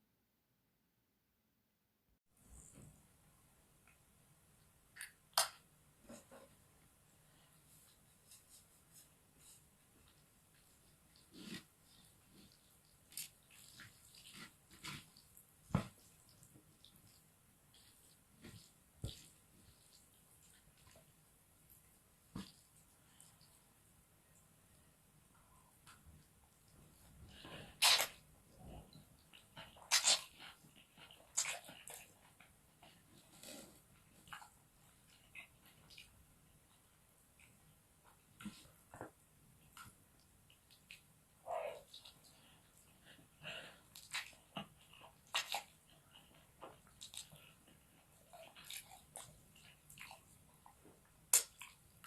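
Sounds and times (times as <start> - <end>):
wet mouth clicks: 5.0 - 5.6, 51.3 - 51.8
faint chewing of noodles: 6.0 - 52.0.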